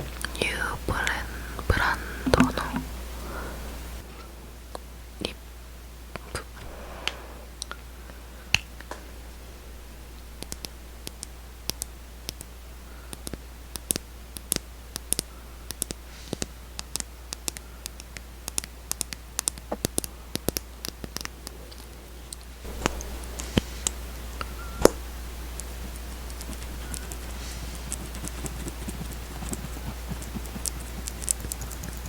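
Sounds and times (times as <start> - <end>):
clicks and taps on cosmetic case: 2.2 - 2.9.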